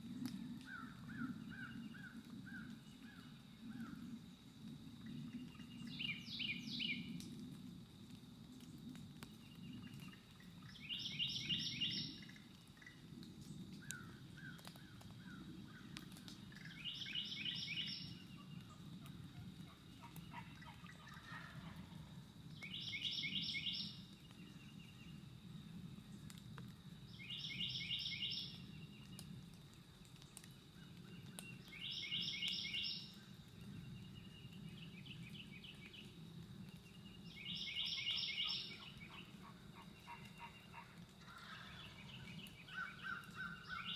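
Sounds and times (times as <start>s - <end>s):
faint bird calls: 16.6s - 24.1s, 37.4s - 43.9s
songbird singing pulsed phrase: 16.7s - 18.2s, 22.6s - 24.0s, 31.7s - 33.2s, 37.2s - 39.4s.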